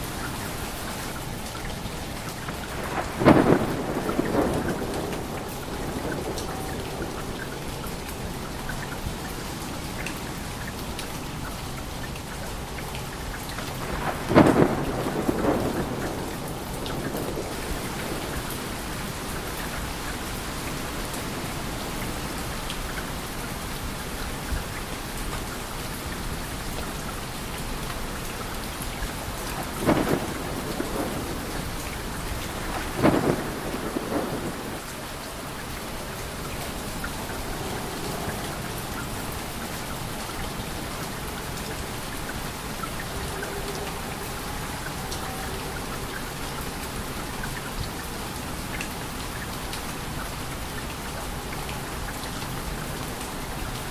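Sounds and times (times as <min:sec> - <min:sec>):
steady rain hiss: 0:00.0 - 0:53.9
thunder rolling: 0:02.4 - 0:08.4, 0:13.8 - 0:19.2, 0:29.2 - 0:40.8.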